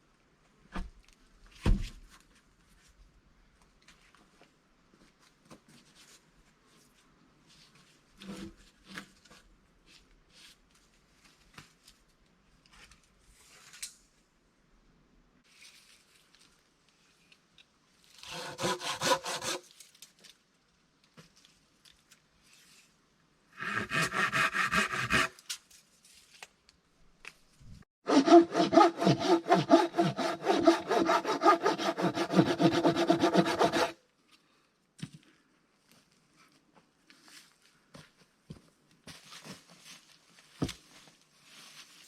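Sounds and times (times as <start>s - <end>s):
hand saw cutting wood: 18.2s - 19.6s, 23.6s - 25.4s, 28.1s - 34.0s.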